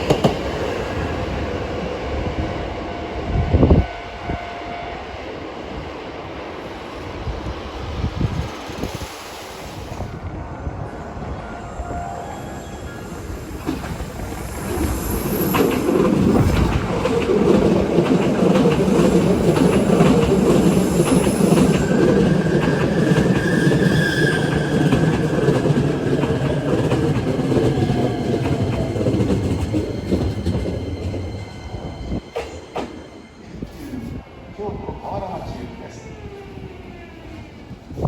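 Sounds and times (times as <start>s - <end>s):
electric train rumbling past: 0.0s - 38.0s
high squeal of train wheels: 11.2s - 37.5s
train wheels clattering: 13.5s - 33.2s.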